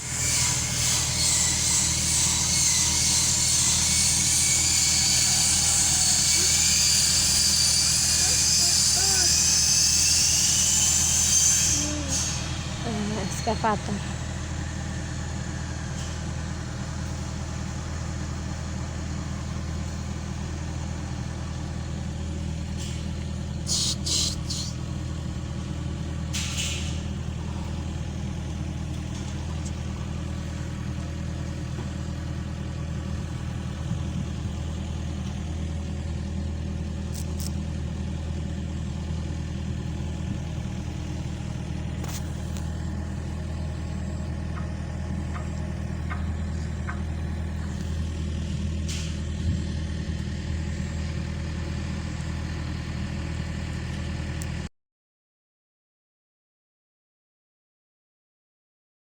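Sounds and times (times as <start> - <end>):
diesel engine running: 0.0 - 54.7
short hisses: 23.7 - 24.8.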